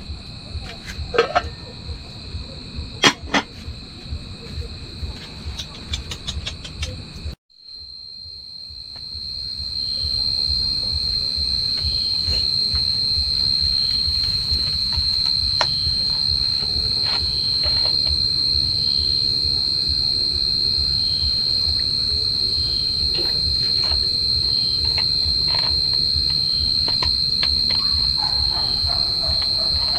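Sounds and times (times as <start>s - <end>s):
steady high-pitched whine: 0.0s - 29.9s
scattered clicks: 5.4s - 7.4s.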